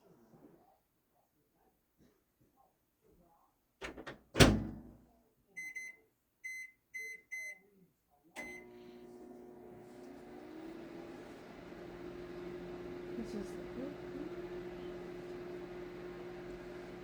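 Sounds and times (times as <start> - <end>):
microwave door thud: 3.8 - 4.9
keypad beeps: 5.6 - 7.6, 8.4 - 8.6
microwave humming: 8.4 - 17.0.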